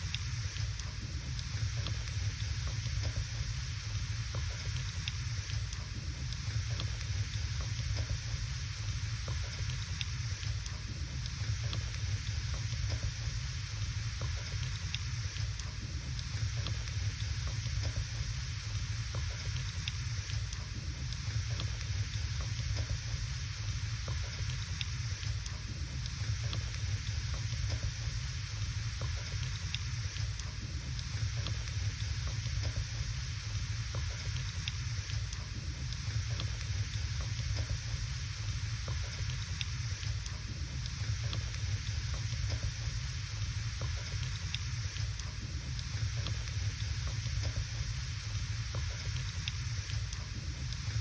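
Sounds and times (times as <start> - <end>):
fire crackles and pops: 0.0 - 51.0
wood fire hissing and rumbling: 0.0 - 51.0.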